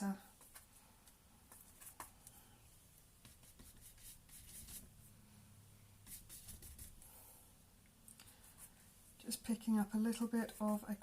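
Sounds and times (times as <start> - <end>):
paintbrush scrubbing paint: 3.2 - 4.9, 6.0 - 7.0.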